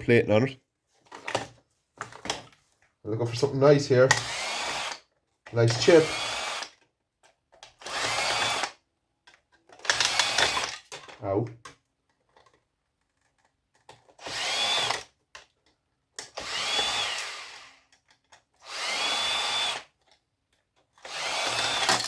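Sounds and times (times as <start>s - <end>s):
power drill motor whine: 4.1s - 5.0s, 5.6s - 6.8s, 7.8s - 8.8s, 9.8s - 10.8s, 14.2s - 15.1s, 16.4s - 17.9s, 18.6s - 20.0s, 21.0s - 22.0s.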